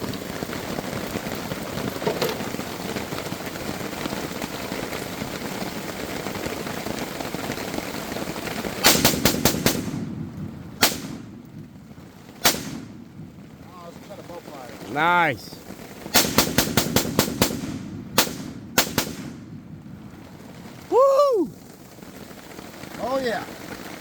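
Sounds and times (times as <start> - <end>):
steady rain falling: 0.0 - 24.0
gunshots: 8.8 - 10.1, 10.8 - 11.3, 12.4 - 13.0, 16.0 - 19.5.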